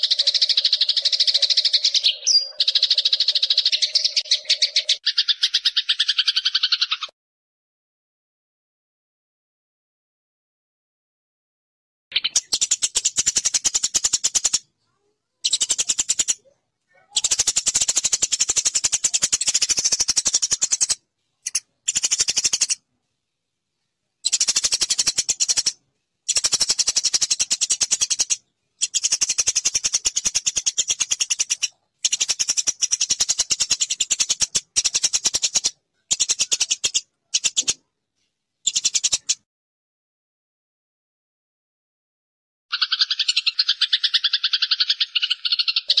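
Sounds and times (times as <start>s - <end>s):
sparrow chirping: 0.0s - 7.1s, 12.1s - 22.8s, 24.2s - 37.8s, 38.6s - 39.4s, 42.7s - 46.0s.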